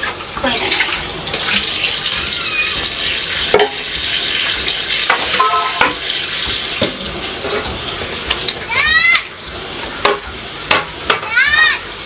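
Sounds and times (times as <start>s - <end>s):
tap water running into sink: 0.0s - 12.0s
items knocking against sink: 3.5s - 3.8s, 5.0s - 8.6s, 10.0s - 11.4s.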